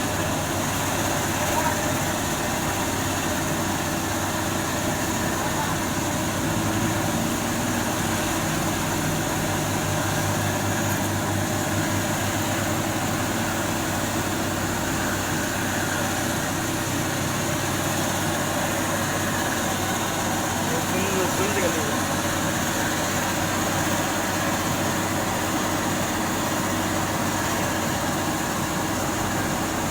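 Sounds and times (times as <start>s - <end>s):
vehicle engine humming: 0.0s - 29.9s
constant hiss: 17.5s - 24.8s.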